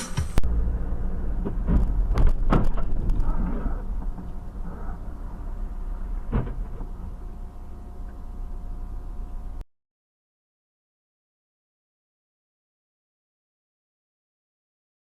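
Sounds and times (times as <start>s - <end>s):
car low rumble: 0.0s - 9.6s.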